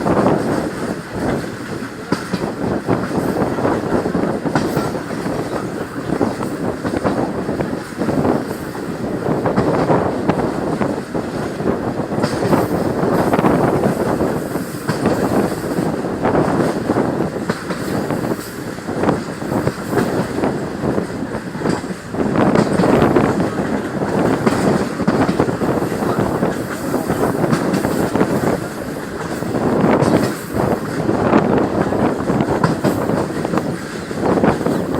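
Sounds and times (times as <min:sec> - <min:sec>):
train rumbling: 0:00.0 - 0:34.9.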